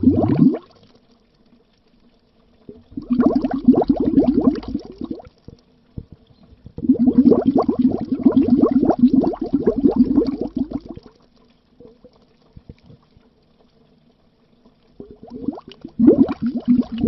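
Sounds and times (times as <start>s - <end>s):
bubbles burbling under water: 0.0s - 0.9s, 2.6s - 11.2s, 15.0s - 17.0s.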